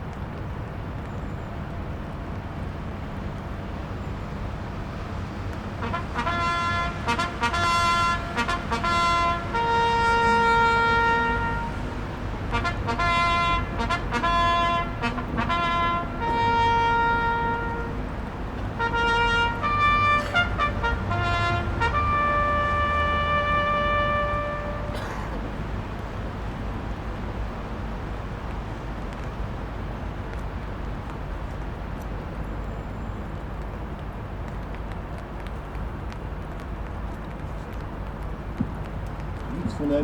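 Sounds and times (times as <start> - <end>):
steady low rumble: 0.0 - 40.0
brass instrument slow melody: 5.8 - 25.0.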